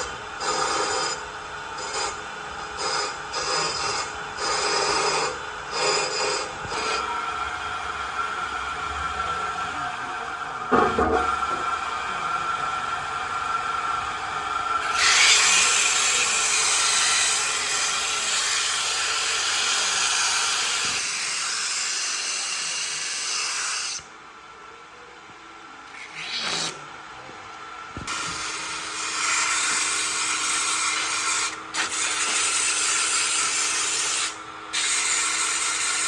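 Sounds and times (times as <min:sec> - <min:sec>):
power tool hissing on wood: 0:14.8 - 0:23.2, 0:28.1 - 0:36.0
power tool humming: 0:14.8 - 0:24.1, 0:28.0 - 0:36.0.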